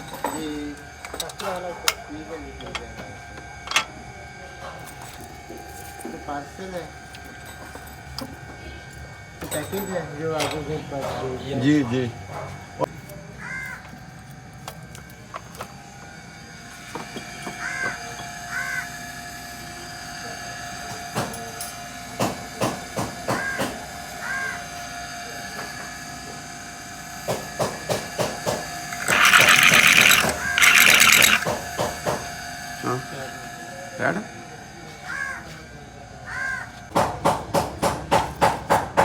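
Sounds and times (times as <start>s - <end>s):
hand tools clinking on metal: 4.8s - 10.6s, 28.9s - 31.6s.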